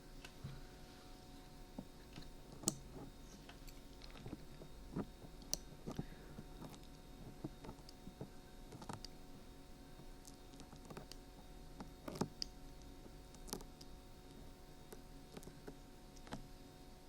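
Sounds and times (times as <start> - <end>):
dried glue peeling crackles: 10.0 - 11.2.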